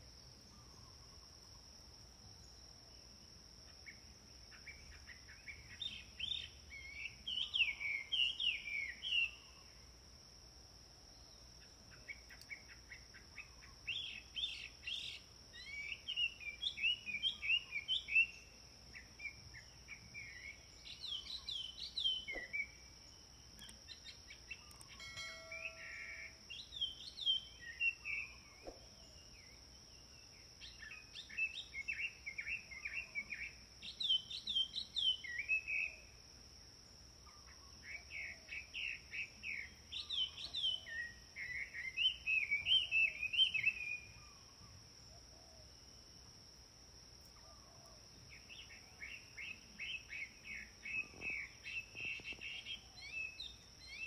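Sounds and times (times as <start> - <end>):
songbirds chirping: 0.0 - 54.0
faint high-pitched drone: 24.6 - 29.6.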